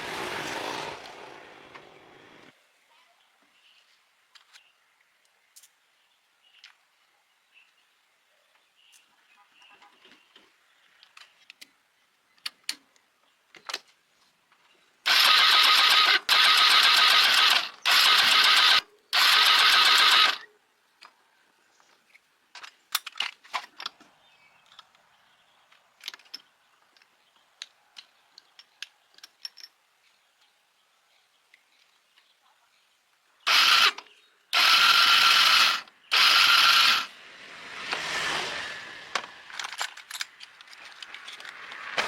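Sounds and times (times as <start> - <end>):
loud mechanical bursts: 15.1 - 20.5, 33.5 - 37.2
tools and parts clicking: 22.1 - 25.0, 25.7 - 30.0, 39.1 - 42.0.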